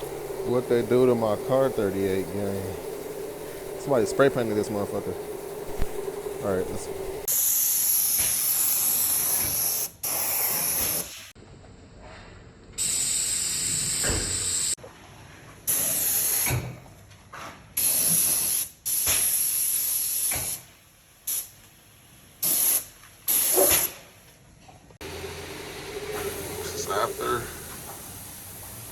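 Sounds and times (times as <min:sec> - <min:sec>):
spray gun hissing: 0:00.0 - 0:07.3, 0:25.0 - 0:28.9.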